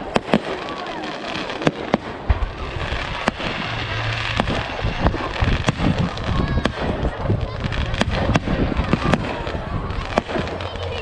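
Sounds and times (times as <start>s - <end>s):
firework shells bursting: 0.0s - 11.0s
fireworks crackling: 0.0s - 11.0s
low rumble: 2.2s - 11.0s.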